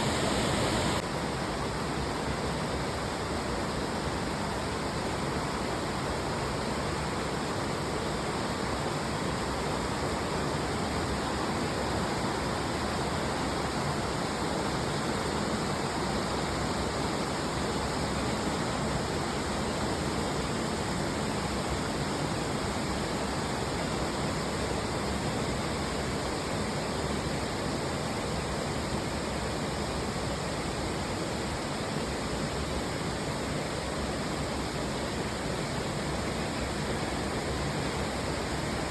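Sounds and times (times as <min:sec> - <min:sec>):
waterfall roaring: 0:00.0 - 0:01.0.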